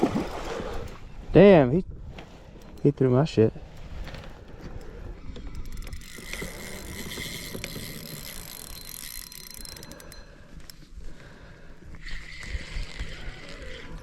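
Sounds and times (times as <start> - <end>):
fishing reel clicking whir: 4.4 - 10.9, 11.9 - 14.0.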